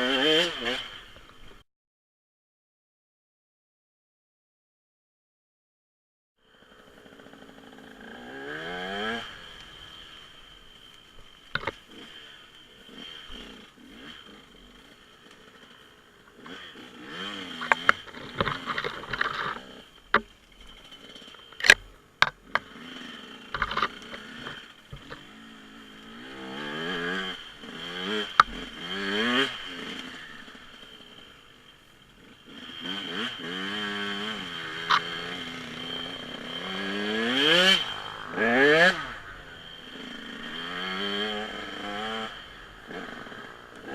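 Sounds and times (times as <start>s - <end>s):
dirt bike engine revving: 0.0s - 1.2s, 6.5s - 43.9s
sharp clicks and knocks: 11.5s - 11.8s, 17.6s - 20.3s, 21.6s - 22.7s, 23.5s - 25.2s.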